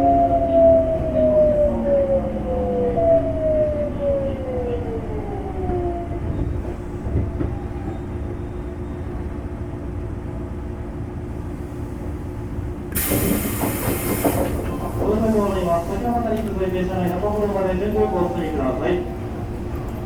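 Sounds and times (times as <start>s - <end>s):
train inverter whine: 0.0s - 20.0s
train rolling low rumble: 0.0s - 20.0s
air brake hiss: 12.9s - 14.6s.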